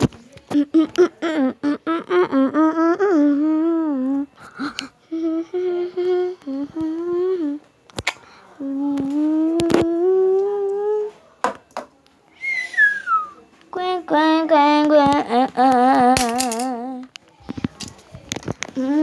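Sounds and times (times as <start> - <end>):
person humming: 0.6 - 7.7, 8.6 - 11.2, 15.0 - 17.1, 18.8 - 19.0.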